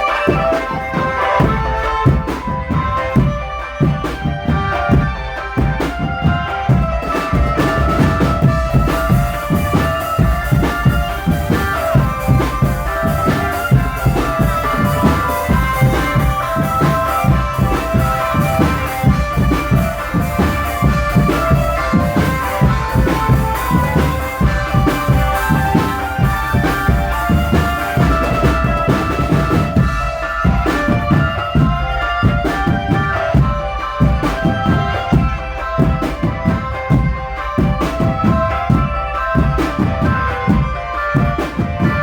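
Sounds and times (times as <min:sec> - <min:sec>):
snare and bass drum beat: 0:00.0 - 0:42.0
sustained melody on pitched instruments: 0:00.0 - 0:42.0.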